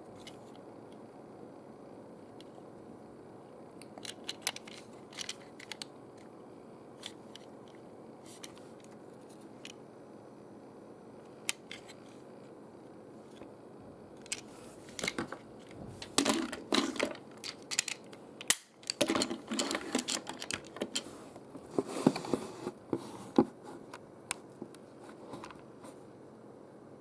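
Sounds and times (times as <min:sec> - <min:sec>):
hard objects clicking and rattling: 0:03.8 - 0:05.9, 0:14.2 - 0:22.4.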